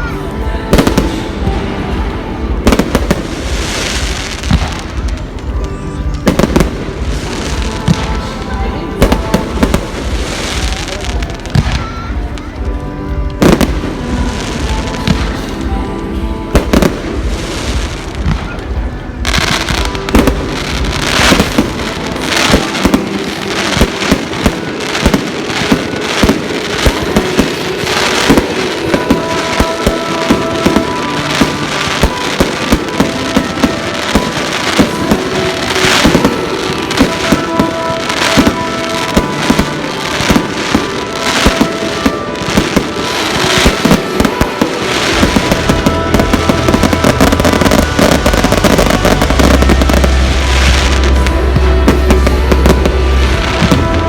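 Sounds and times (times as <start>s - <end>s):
fireworks bangs and crackles: 0.0s - 54.0s
music playing: 0.0s - 54.0s.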